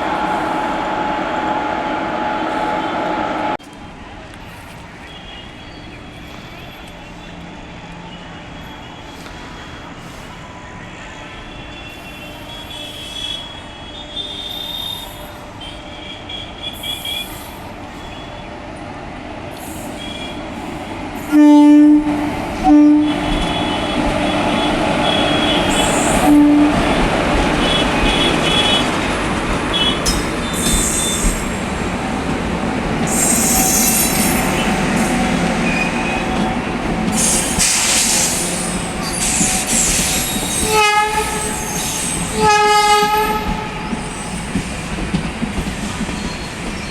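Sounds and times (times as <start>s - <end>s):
wheels rumbling on rail: 13.8s - 46.9s
locomotive horn blasts: 21.3s - 29.0s, 40.6s - 43.8s
wheel squeal: 29.8s - 31.6s, 33.1s - 36.6s, 37.2s - 42.3s.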